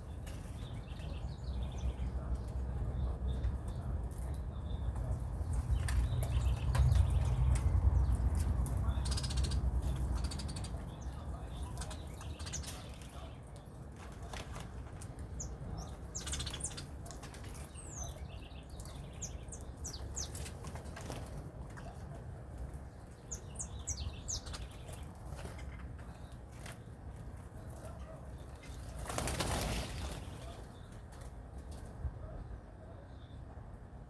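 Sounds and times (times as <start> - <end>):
steady low rumble: 0.0 - 14.2
birds chirping: 0.0 - 33.7
wings flapping: 28.6 - 31.9.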